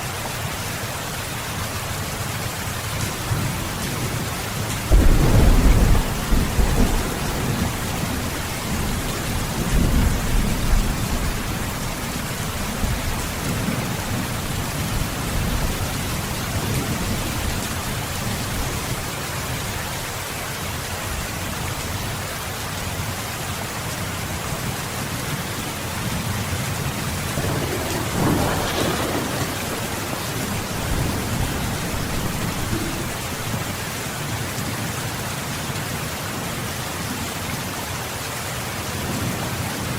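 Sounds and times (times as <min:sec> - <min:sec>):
heavy rain falling: 0:00.0 - 0:39.9
low rolling thunder: 0:03.0 - 0:19.0, 0:26.1 - 0:34.0.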